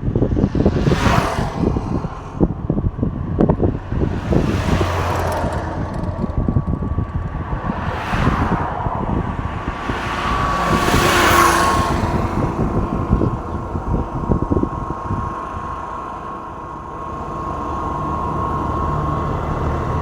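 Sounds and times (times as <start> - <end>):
trucks passing: 0.0 - 20.0
wind buffeting microphone: 0.0 - 20.0.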